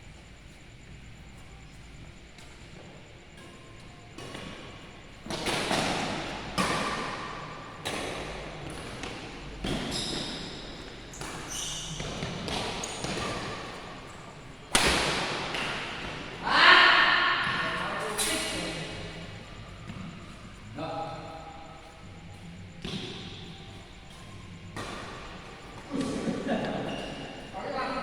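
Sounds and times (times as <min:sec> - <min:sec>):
racket striking shuttlecock: 0:14.7 - 0:16.4.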